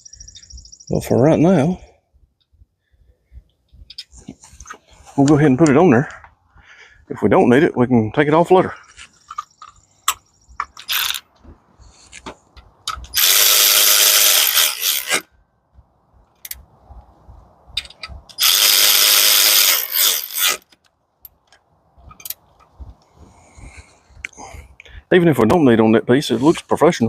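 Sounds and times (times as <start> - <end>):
parts clicking and knocking: 8.9 - 15.3, 17.7 - 22.8
power driver driving fasteners: 9.2 - 11.3, 12.9 - 15.3, 17.8 - 20.9.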